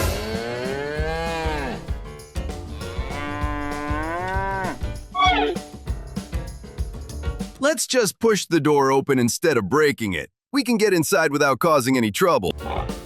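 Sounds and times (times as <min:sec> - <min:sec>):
cow mooing: 0:00.0 - 0:01.9, 0:02.7 - 0:05.6.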